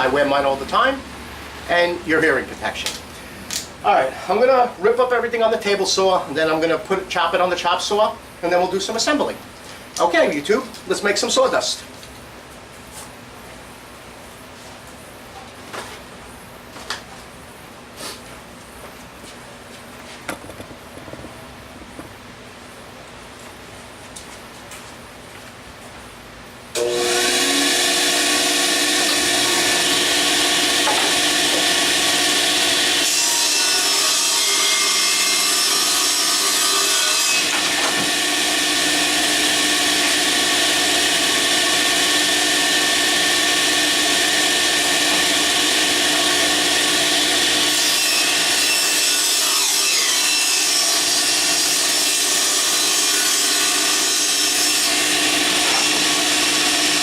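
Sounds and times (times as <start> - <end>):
table saw ripping wood: 26.8 - 57.0.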